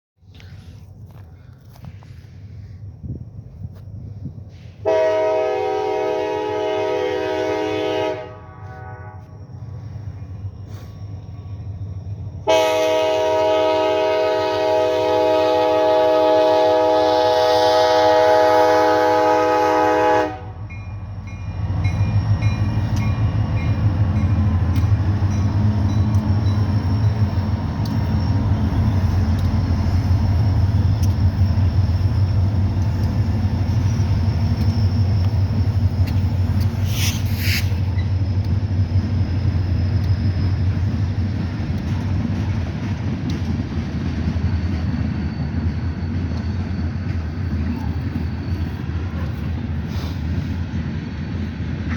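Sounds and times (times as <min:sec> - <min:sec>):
train rumbling past: 0:00.2 - 0:51.9
diesel locomotive horn: 0:04.8 - 0:09.5, 0:12.4 - 0:21.0.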